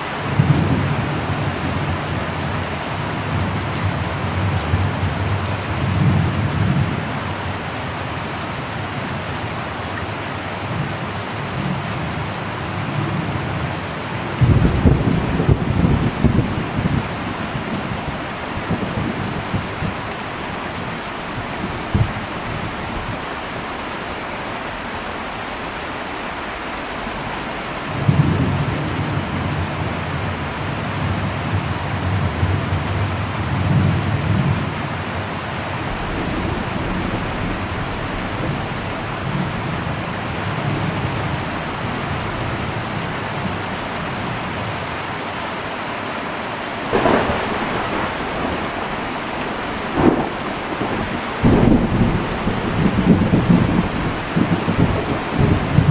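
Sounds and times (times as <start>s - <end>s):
heavy rain on a metal roof: 0.0s - 55.9s
low rumble of thunder: 11.5s - 23.7s, 27.9s - 44.4s, 46.8s - 55.9s
sharp crack of thunder: 14.3s - 23.2s, 35.8s - 41.0s, 46.8s - 55.9s.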